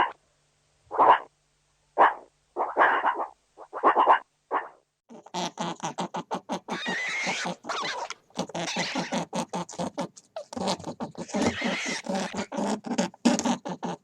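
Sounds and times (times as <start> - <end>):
dog barking: 0.9 - 1.3, 2.0 - 4.8
animal making short pitched calls: 2.0 - 5.4.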